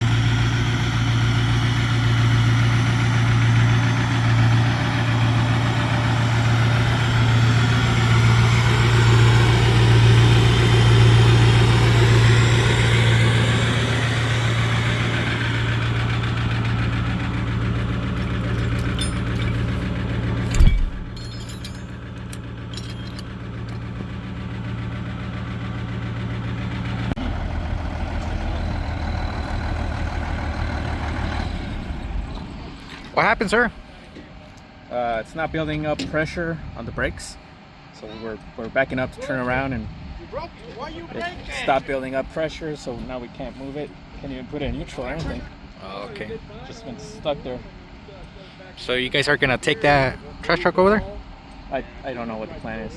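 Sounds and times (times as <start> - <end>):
diesel truck engine idling: 0.0 - 52.9
loud thump: 20.5 - 21.2.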